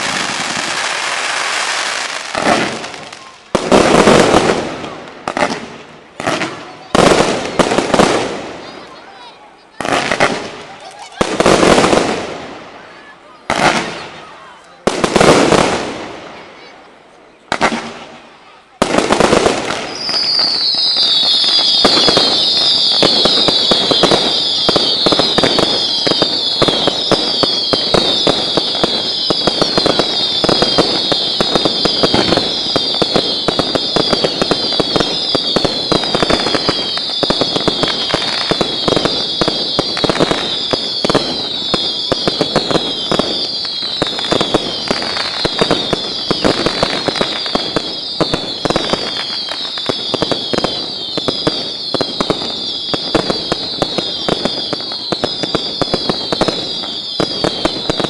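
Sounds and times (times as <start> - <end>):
fireworks crackling: 0.0 - 58.0
fireworks whistles falling in pitch: 19.2 - 58.0.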